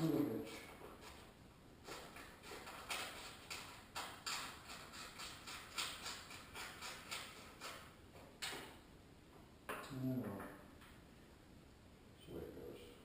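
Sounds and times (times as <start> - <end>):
hand tool scraping strokes: 0.5 - 7.9.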